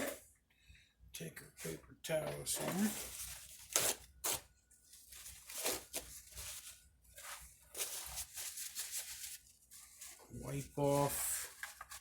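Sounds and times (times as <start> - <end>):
paper towels rustling: 2.4 - 12.0.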